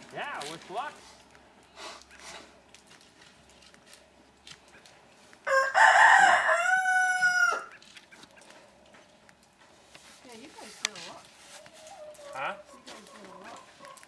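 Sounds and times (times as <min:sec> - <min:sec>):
rooster crowing: 0:05.4 - 0:07.8.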